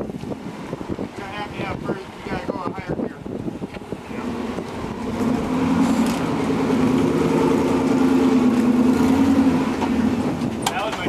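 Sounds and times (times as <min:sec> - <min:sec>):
engine revving under load: 0:03.8 - 0:10.7.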